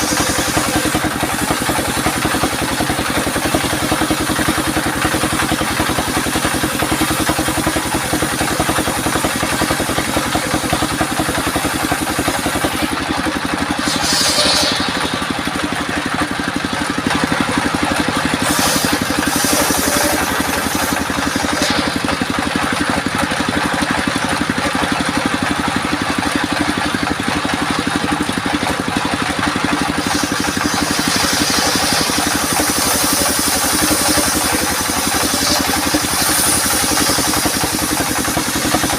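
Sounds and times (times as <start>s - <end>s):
circular saw and engine droning: 0.0s - 38.9s
hissy higher sound: 13.8s - 15.5s.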